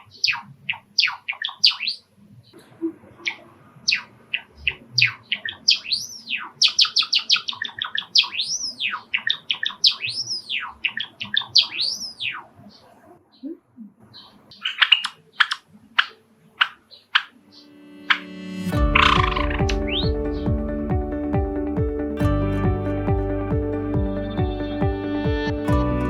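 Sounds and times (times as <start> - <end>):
sparrow singing: 0.0 - 2.0, 3.2 - 20.9.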